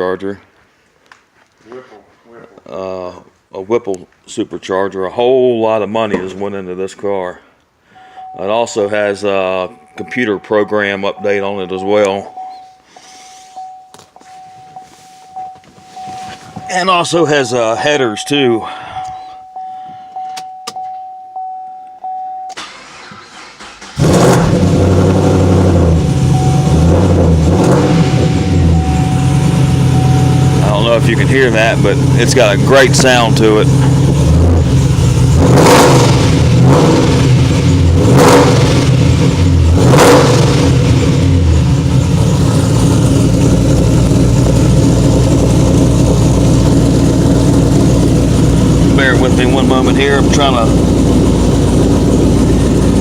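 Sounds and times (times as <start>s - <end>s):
car warning chime: 8.0s - 22.9s, 26.0s - 33.5s
car engine starting and idling: 8.2s - 20.8s, 21.4s - 53.0s.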